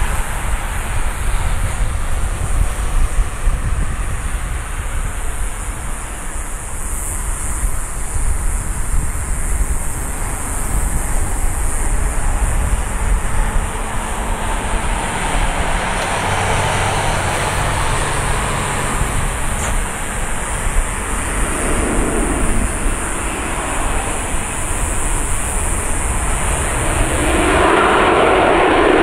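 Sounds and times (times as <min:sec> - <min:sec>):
distant jet engines rushing: 0:00.0 - 0:29.0.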